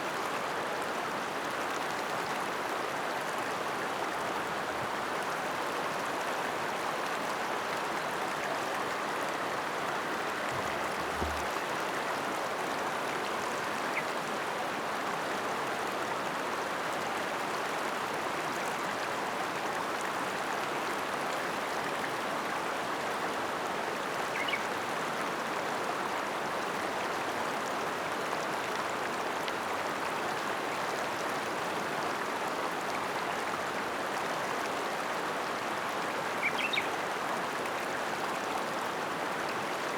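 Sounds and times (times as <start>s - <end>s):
water rushing over rocks: 10.3s - 11.8s.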